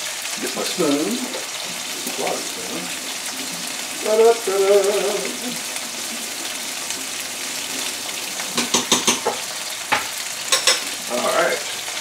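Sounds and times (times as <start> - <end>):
chicken sizzling in frying pan: 0.0 - 12.0
spoon clinking and scraping pan: 8.5 - 11.0.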